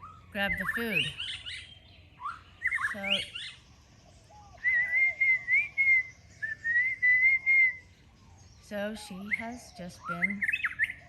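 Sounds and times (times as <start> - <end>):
long wavering whistle: 4.6 - 7.8.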